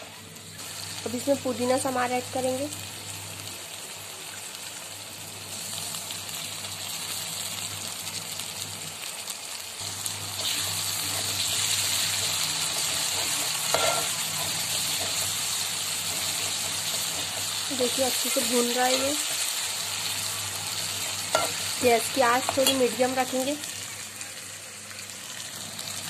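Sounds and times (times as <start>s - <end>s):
food sizzling in hot oil: 0.0s - 26.0s
steel spoon stirring in pot: 12.7s - 19.5s, 21.0s - 21.6s.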